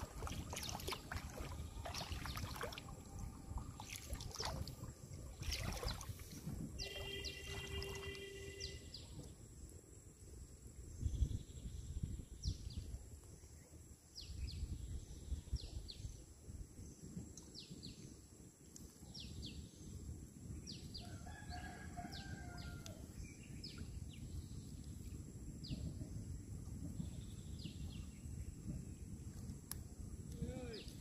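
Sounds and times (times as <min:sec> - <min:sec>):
low steady rumble: 0:00.0 - 0:08.7
low bird call: 0:06.8 - 0:08.9.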